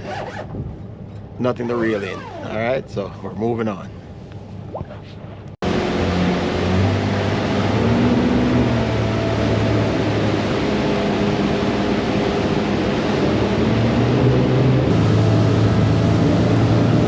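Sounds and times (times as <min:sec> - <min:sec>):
boat engine drone: 0:03.6 - 0:17.0
wind and water rushing: 0:05.6 - 0:17.0.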